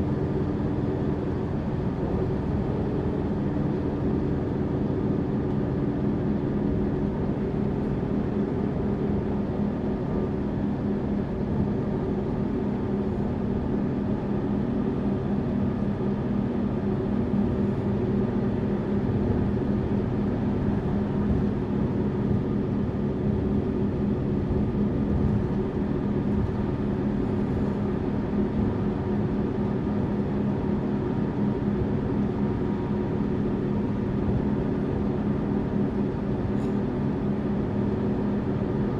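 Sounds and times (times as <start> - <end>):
bus engine running: 0.0 - 38.9.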